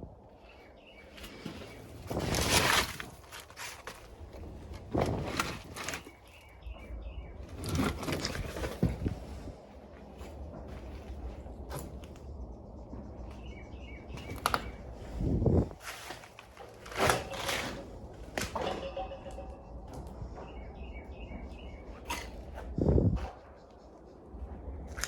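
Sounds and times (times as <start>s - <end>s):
small birds chirping: 0.3s - 2.2s, 5.3s - 17.5s, 19.3s - 25.0s
low steady rumble: 6.4s - 17.0s.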